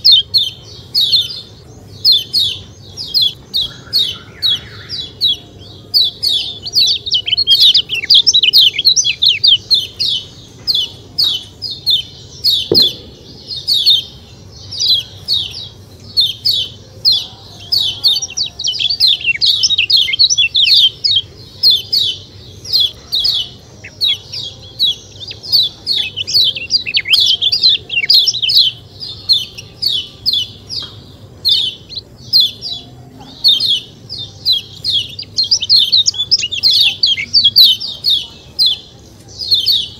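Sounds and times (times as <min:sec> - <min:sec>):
bird chirping rapidly: 0:06.0 - 0:32.8.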